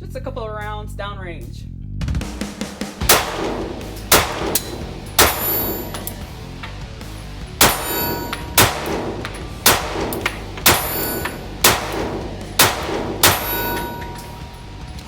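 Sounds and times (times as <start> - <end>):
pistol shots: 3.0 - 6.6, 7.6 - 14.6.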